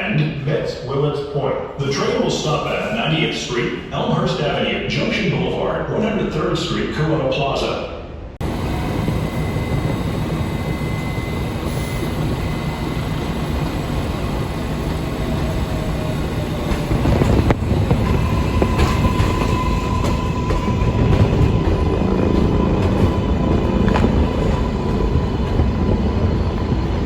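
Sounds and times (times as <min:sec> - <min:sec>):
subway train rumble: 0:00.0 - 0:27.0
high whine or squeal: 0:08.4 - 0:27.0.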